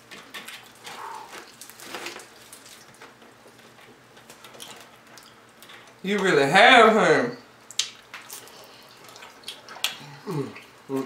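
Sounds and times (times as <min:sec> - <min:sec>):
chewing food: 0:07.7 - 0:11.0.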